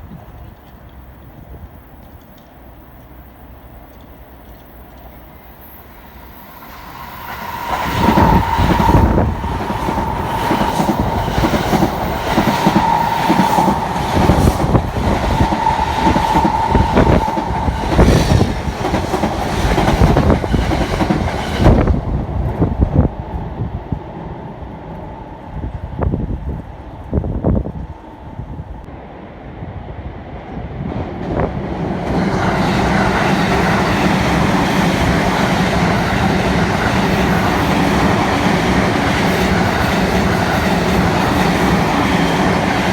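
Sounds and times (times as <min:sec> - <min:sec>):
steady high tone: 0:06.4 - 0:18.7.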